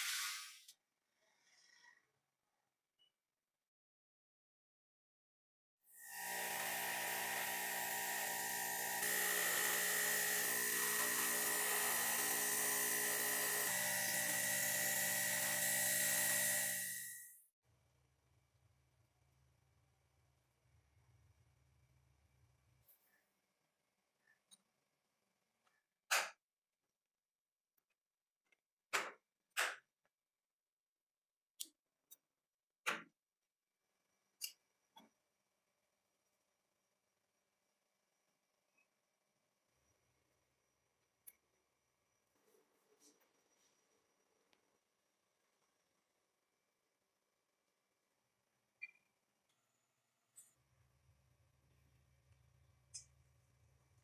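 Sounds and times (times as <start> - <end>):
small electric motor whining: 6.0 - 17.4.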